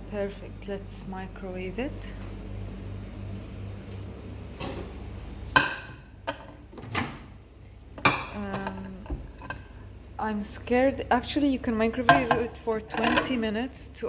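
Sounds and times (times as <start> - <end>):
plate clinking and knocking: 12.1 - 13.3.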